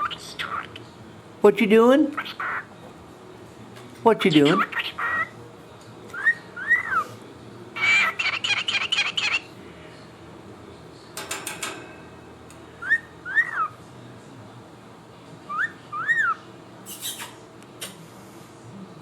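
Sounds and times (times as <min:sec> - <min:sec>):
harsh bird chirps: 0:04.4 - 0:05.3, 0:06.1 - 0:07.1, 0:07.8 - 0:09.5, 0:12.8 - 0:13.8, 0:15.5 - 0:17.4
cockatiel whistling: 0:06.1 - 0:07.0, 0:12.8 - 0:13.7, 0:15.5 - 0:17.3.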